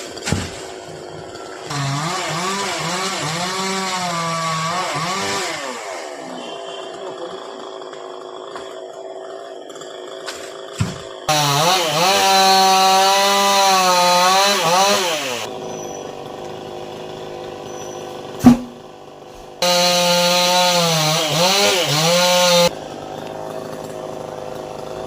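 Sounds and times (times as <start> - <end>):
chainsaw cutting wood: 0.0 - 25.0
sharp loud knock: 18.4 - 18.8.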